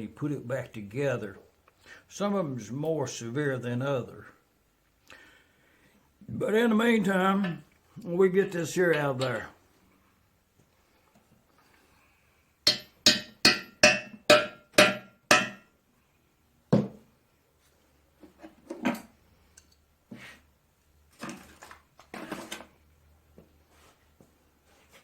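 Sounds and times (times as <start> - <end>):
chisel knocking and scraping: 12.7 - 15.7
hammer striking chisel: 12.7 - 15.7.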